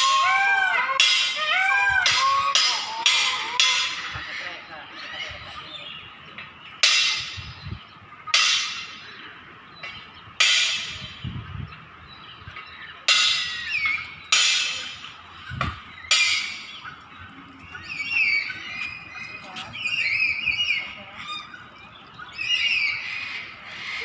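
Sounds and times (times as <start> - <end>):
loud bird calls: 0.0 - 24.0.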